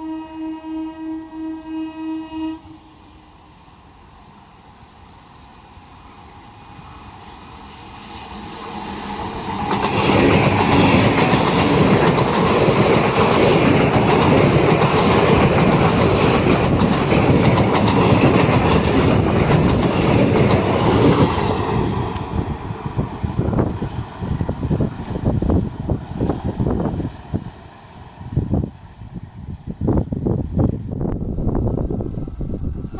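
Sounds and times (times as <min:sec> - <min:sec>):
train wheels clattering over rail joints: 0:09.1 - 0:25.8.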